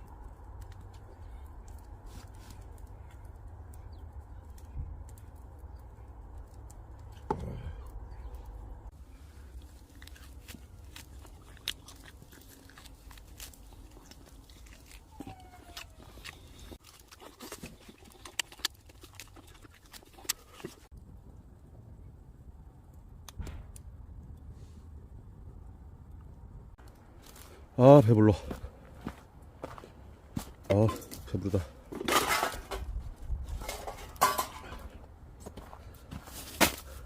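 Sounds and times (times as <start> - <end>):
person chewing meat: 9.2 - 20.9
low steady rumble: 18.8 - 27.8.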